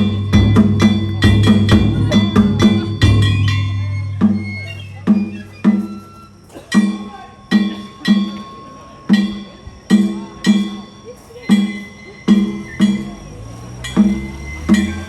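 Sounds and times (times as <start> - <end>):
deep drum strokes: 0.0 - 6.0
ringing metal percussion: 0.0 - 15.0.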